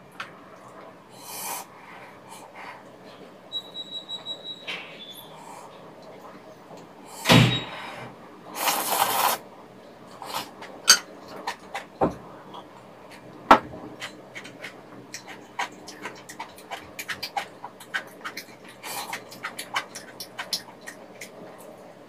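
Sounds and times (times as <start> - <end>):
chopsticks clicking against a plate: 14.0 - 21.4
wet chewing and mouth clicks: 14.0 - 21.7.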